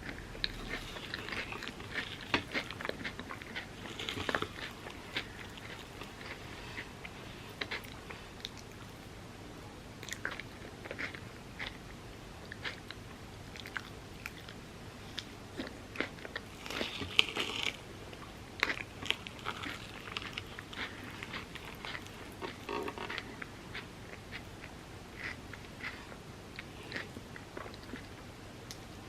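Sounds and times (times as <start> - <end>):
crunching bites and chewing: 0.0 - 6.9, 13.6 - 17.8, 18.6 - 28.2.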